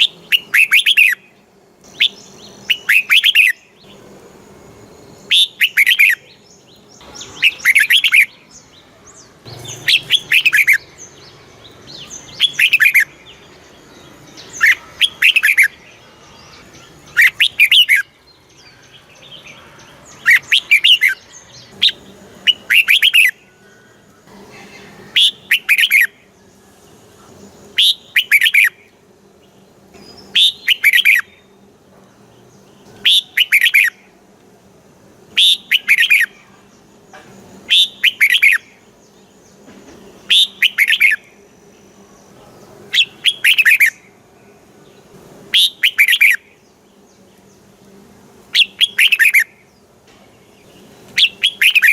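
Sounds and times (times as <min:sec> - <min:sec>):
bird singing warbling phrases: 0:00.0 - 0:04.1, 0:04.9 - 0:31.7, 0:32.3 - 0:34.2, 0:35.2 - 0:51.9.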